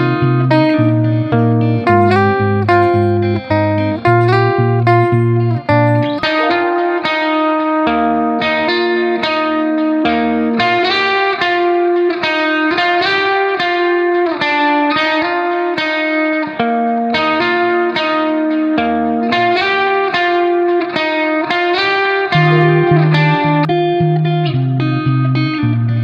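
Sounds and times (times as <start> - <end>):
bass notes: 0.0 - 7.0, 22.4 - 26.0
plucked guitar melody: 0.0 - 26.0.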